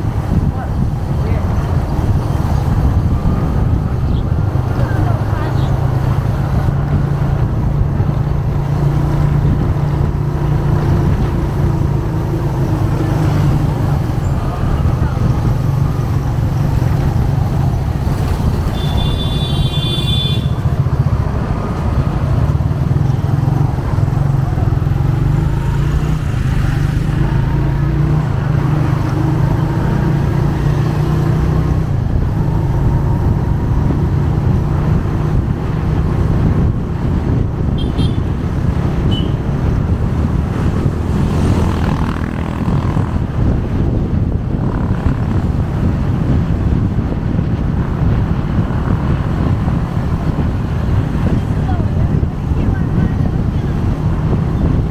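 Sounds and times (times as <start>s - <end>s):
road and traffic noise: 0.0s - 54.9s
motorcycle engine running: 31.5s - 54.9s.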